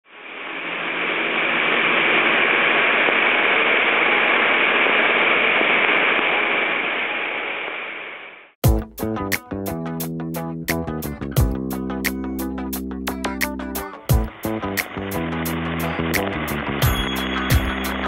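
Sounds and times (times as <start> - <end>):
hiss of falling water: 0.1 - 7.6.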